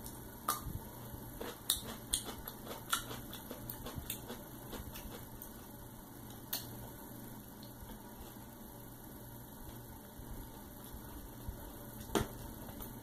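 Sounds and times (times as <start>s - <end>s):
mouth chewing: 1.4s - 5.6s
crisp crunching of pickle: 1.4s - 5.8s.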